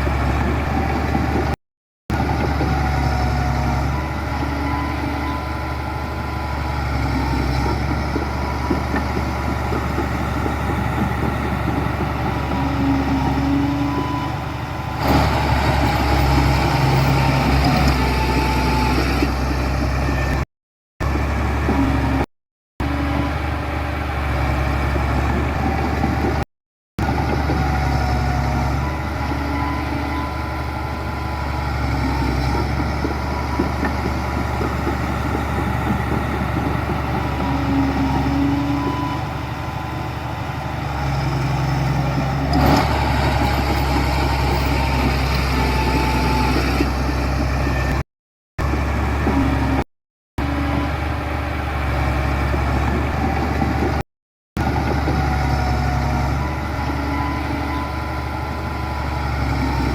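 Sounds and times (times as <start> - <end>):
diesel machinery running: 0.0 - 48.0, 48.6 - 54.0, 54.6 - 59.9.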